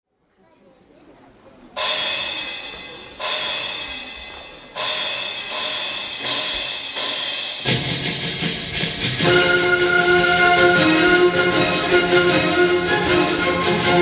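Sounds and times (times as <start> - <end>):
metallic percussion strikes: 1.7 - 10.5
deep drums: 1.8 - 9.6.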